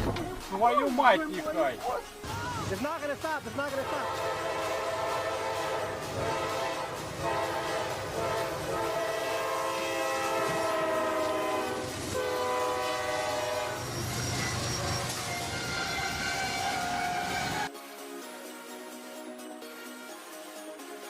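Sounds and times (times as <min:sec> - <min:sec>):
train horn blasts: 0:03.8 - 0:17.7.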